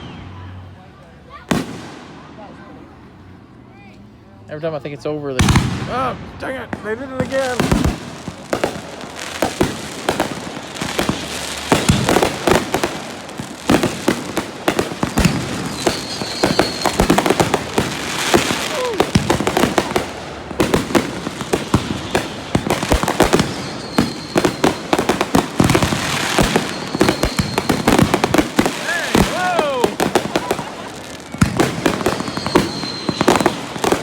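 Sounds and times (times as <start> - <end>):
high thin firework whistle: 0.0 - 0.6, 15.0 - 17.5, 23.1 - 25.0, 25.7 - 28.2, 31.3 - 34.0
firework shell bangs and crackling: 5.4 - 34.0.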